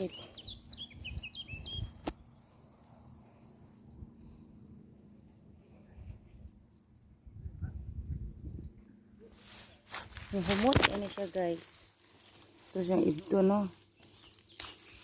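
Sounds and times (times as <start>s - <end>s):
songbird trilling: 0.0s - 2.0s.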